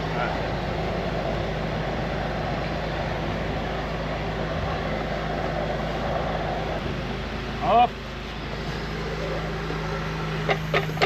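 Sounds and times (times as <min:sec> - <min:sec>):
drain jetter pump running: 0:00.0 - 0:11.0.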